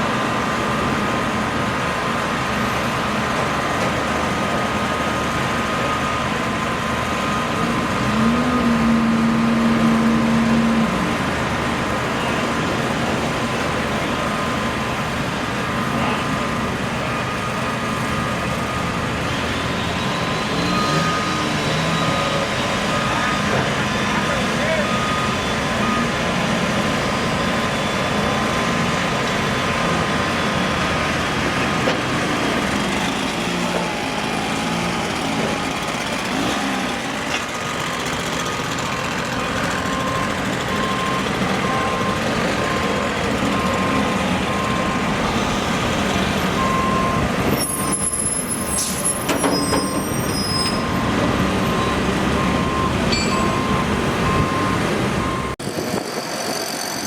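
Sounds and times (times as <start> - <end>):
diesel engine running: 0.0 - 57.0
backup alarm beeping: 24.7 - 26.2, 38.8 - 56.1
high-pitched squeal and hiss: 47.5 - 51.0, 55.6 - 57.0.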